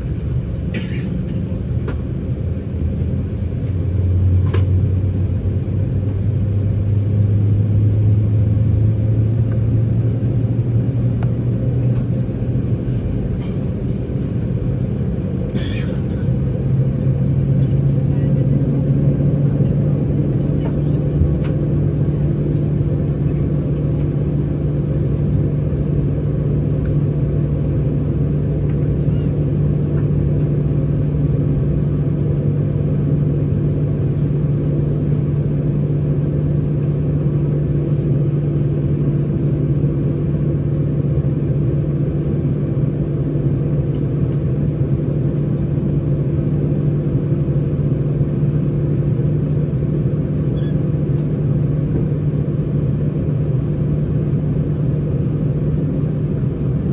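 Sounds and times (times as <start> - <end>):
aircraft cabin engine drone: 0.0 - 56.9.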